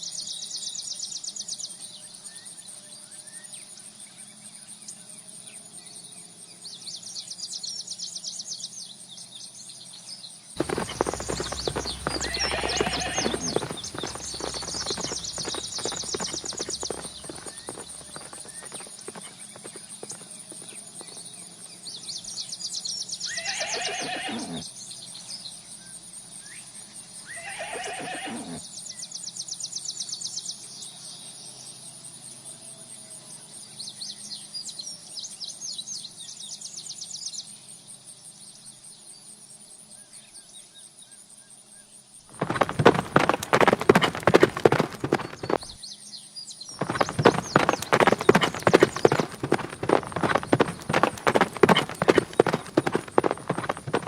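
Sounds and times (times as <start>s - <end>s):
horses whinnying: 10.6s - 20.6s, 23.3s - 24.6s, 27.4s - 28.6s, 42.3s - 45.8s, 46.8s - 54.0s
hooves clip-clopping: 10.6s - 21.2s, 42.3s - 45.8s, 46.8s - 54.0s
rapid hoofbeats: 10.6s - 21.3s, 23.8s - 24.6s, 42.3s - 45.8s, 46.8s - 54.0s.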